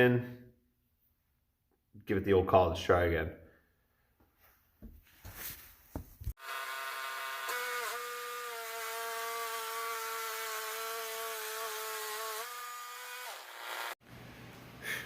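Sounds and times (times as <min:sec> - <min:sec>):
bandsaw mill cutting wood: 0:06.4 - 0:14.0.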